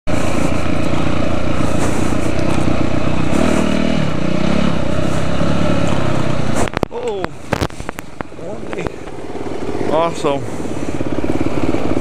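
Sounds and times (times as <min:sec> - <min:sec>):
dirt bike engine revving: 0:00.1 - 0:06.8, 0:07.5 - 0:12.0.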